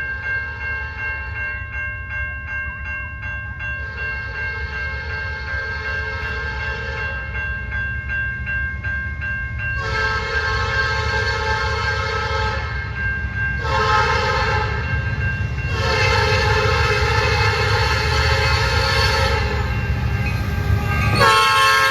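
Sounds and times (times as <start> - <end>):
passing train rumble: 0.0 - 21.9
locomotive air horn blasts: 9.8 - 12.7, 13.6 - 14.8, 15.7 - 19.7, 21.2 - 21.9.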